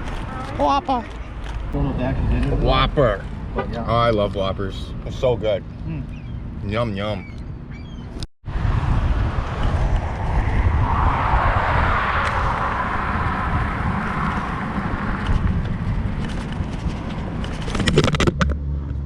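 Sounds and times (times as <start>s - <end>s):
low traffic rumble: 0.0s - 19.0s
vehicle passing: 8.5s - 17.7s.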